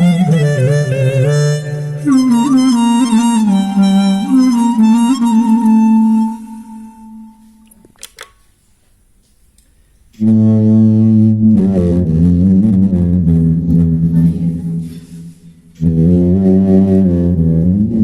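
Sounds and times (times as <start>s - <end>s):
reedy clarinet-like effects tone: 0.0s - 7.6s, 10.2s - 18.0s.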